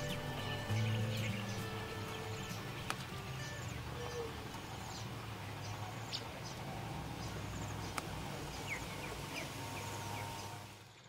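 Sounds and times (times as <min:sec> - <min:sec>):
high bird chirps: 0:00.0 - 0:06.6.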